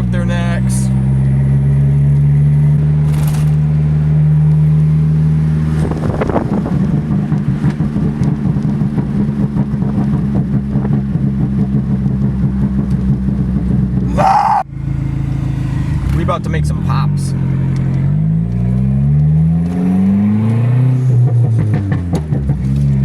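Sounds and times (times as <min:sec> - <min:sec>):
car engine running: 0:05.8 - 0:18.7.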